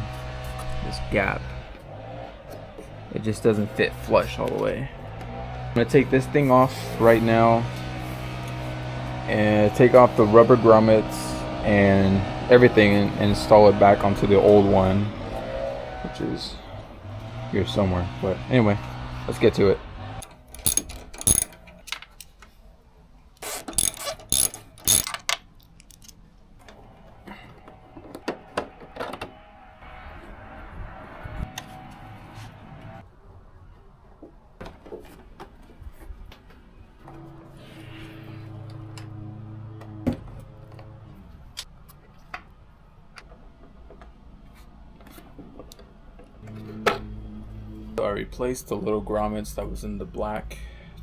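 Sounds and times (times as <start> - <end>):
hand tools clicking on plastic: 20.2 - 22.5
plastic parts clicking: 20.2 - 22.5, 23.4 - 26.8
low held musical tone: 46.4 - 50.1.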